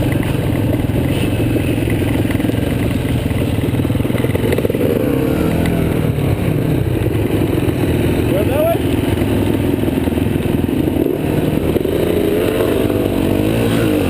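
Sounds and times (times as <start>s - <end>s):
bike rattling: 0.0s - 14.0s
dirt bike engine running: 0.0s - 14.0s.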